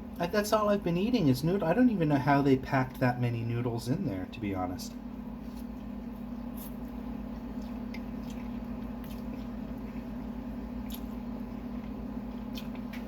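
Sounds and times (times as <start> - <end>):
steady low hum: 0.0 - 13.0
person chewing noodles: 5.4 - 13.0.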